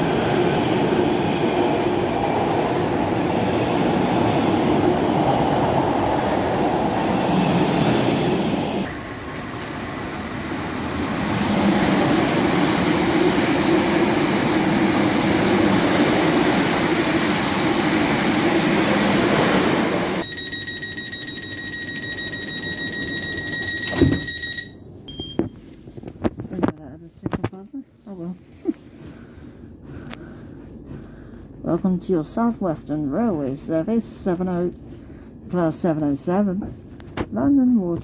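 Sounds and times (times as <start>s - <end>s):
electric train rumble: 0.0s - 24.8s
high steady electronic tone: 20.2s - 24.8s
thump: 23.9s - 24.4s.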